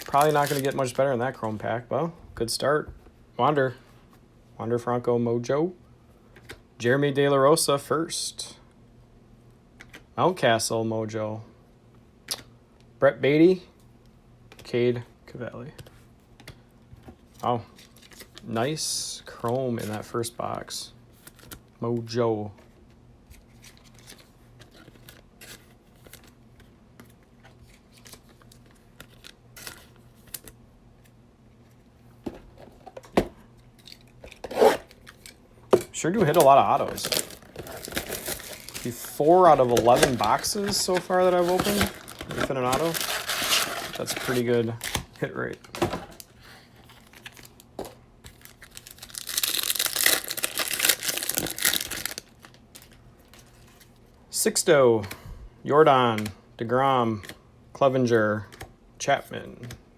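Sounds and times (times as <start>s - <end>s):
wrapper crackles: 0.0s - 1.0s, 36.2s - 45.1s, 46.9s - 53.5s
cards and wrappers rustling: 0.0s - 1.7s, 17.2s - 21.6s, 23.3s - 31.2s, 36.0s - 54.1s.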